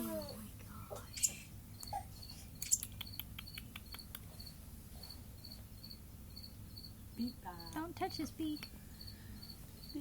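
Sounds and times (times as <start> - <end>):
cricket chirping: 1.1 - 7.8, 8.6 - 10.0.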